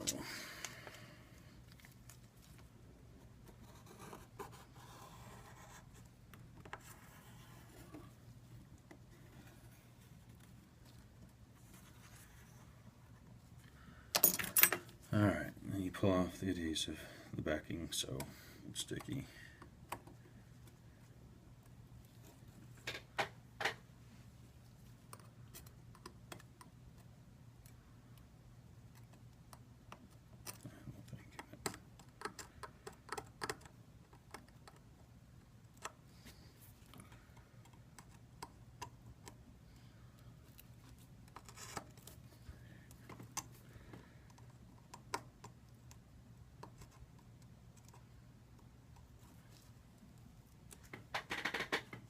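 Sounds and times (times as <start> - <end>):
low steady hum: 0.0 - 51.2
faint scratching and rubbing: 1.8 - 6.1, 6.7 - 8.4, 9.0 - 13.1.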